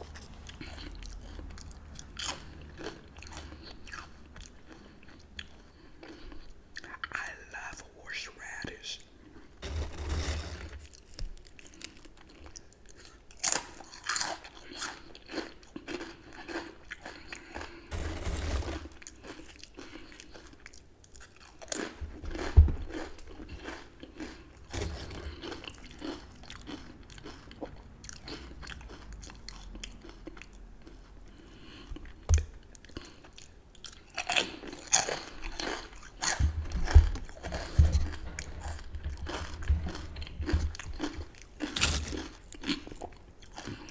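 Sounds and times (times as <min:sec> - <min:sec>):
soft steady chewing: 0:00.0 - 0:09.6, 0:10.2 - 0:43.9
loud crunching bites of chips: 0:13.3 - 0:20.6, 0:21.2 - 0:31.0, 0:33.9 - 0:43.9.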